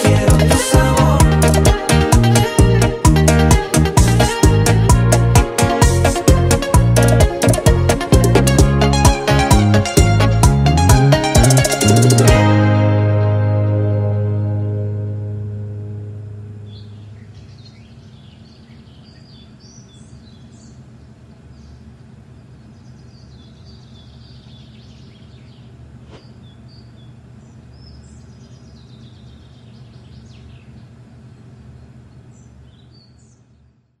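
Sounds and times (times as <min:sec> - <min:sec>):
low steady rumble: 0:00.1 - 0:33.8
birds chirping and trilling: 0:16.6 - 0:33.8.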